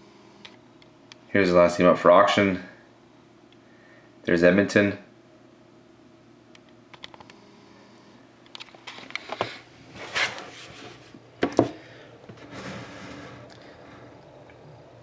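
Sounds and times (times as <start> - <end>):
rustling scrape: 8.9 - 11.2, 12.3 - 13.4.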